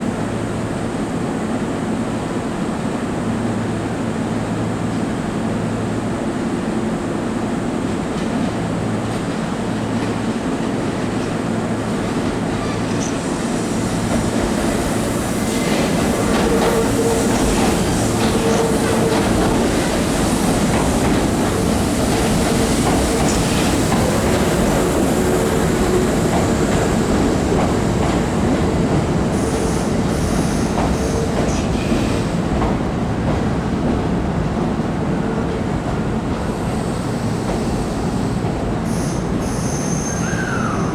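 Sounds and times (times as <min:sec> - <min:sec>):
wheel squeal: 0:38.9 - 0:40.9.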